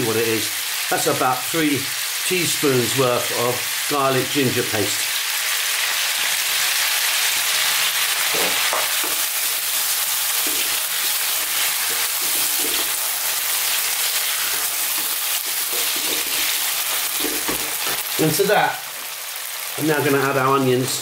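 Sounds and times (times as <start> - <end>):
meat sizzling in oil: 0.0 - 21.0
wooden spatula scraping: 8.3 - 18.2.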